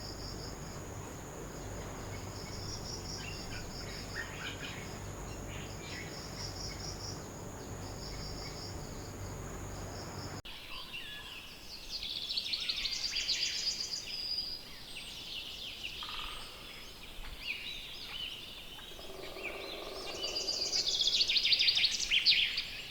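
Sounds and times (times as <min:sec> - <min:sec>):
insects chirping: 0:00.0 - 0:10.4, 0:18.7 - 0:22.9
low hum: 0:00.0 - 0:10.4
birds singing: 0:00.0 - 0:22.9.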